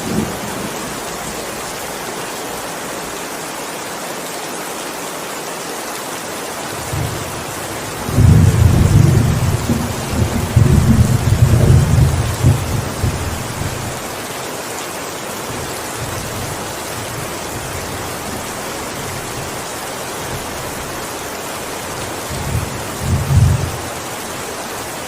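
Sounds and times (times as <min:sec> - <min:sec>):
heavy rain: 0:00.0 - 0:25.0
thunder rumbling: 0:07.8 - 0:14.0.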